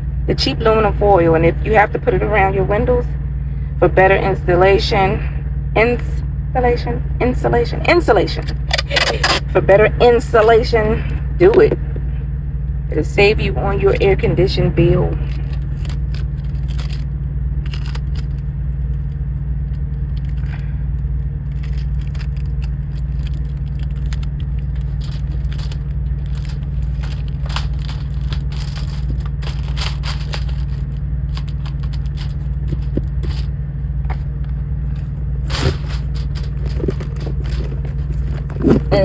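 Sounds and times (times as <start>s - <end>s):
truck diesel engine drone: 0.0s - 39.0s
aluminum foil crackling: 15.2s - 18.4s, 21.5s - 33.5s, 34.9s - 39.0s.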